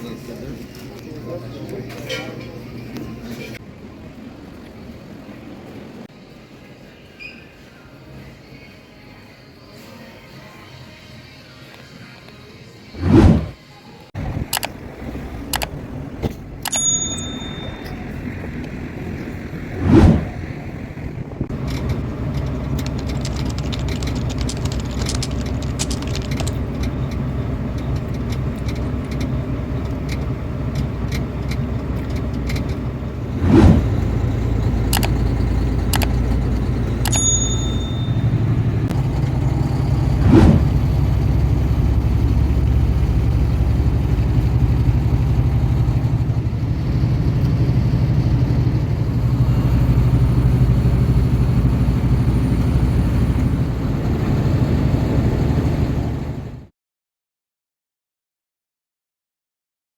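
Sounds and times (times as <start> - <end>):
vehicle engine humming: 12.8 - 56.7
loud thumps: 13.0 - 13.6
sharp clicks: 14.2 - 14.8, 15.5 - 15.8, 21.7 - 27.0, 34.9 - 36.4.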